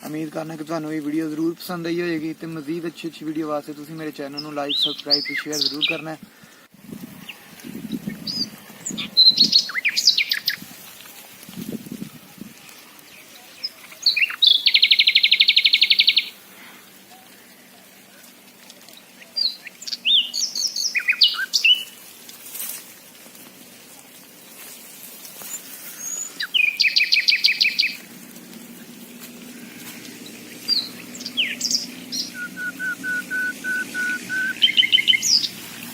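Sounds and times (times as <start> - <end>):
birds chirping: 0.0 - 35.9
bird trill: 8.2 - 10.6, 13.5 - 16.3, 19.4 - 21.9, 26.0 - 28.0, 30.2 - 35.6
piping bird notes: 25.4 - 35.9.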